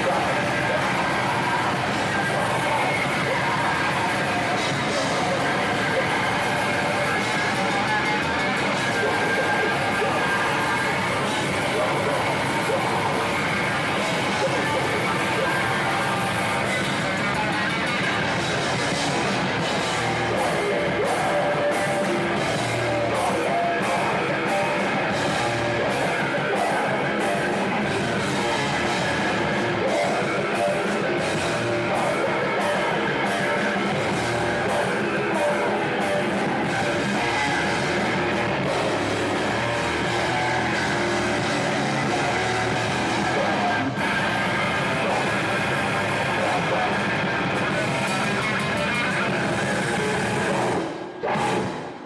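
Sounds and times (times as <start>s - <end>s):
hardcore band playing live: 0.0s - 52.0s.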